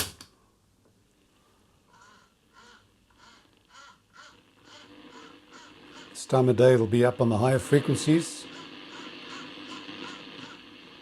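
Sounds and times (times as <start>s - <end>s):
bird cawing: 1.8s - 6.3s, 8.4s - 11.0s.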